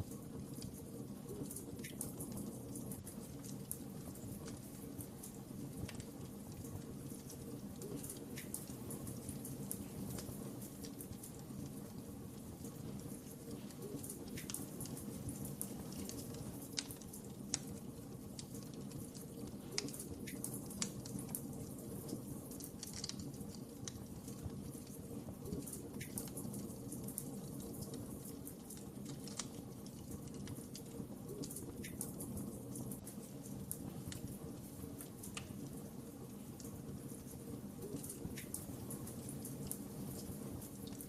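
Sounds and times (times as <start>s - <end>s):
wood fire crackling: 0.0s - 41.0s.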